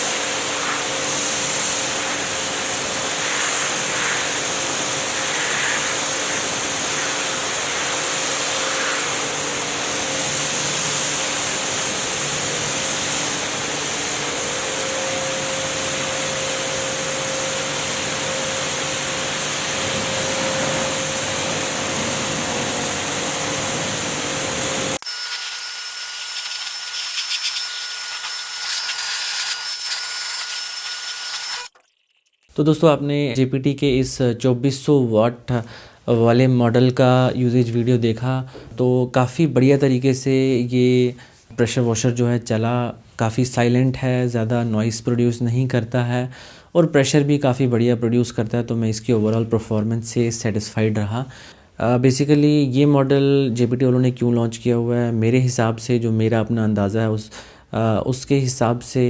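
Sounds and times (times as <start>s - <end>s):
pressure washer running: 22.9s - 31.7s.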